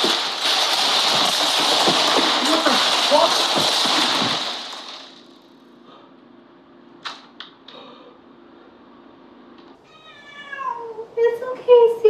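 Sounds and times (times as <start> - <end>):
cat yowling: 9.8 - 11.0.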